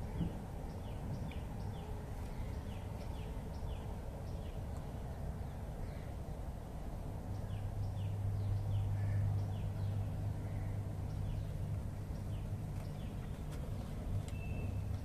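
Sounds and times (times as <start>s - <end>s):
low outdoor rumble: 0.0s - 15.0s
bird chirping: 7.3s - 15.0s.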